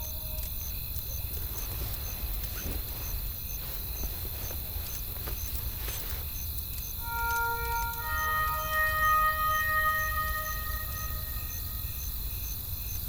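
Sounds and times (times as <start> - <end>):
faint high chirp: 7.0 - 12.3.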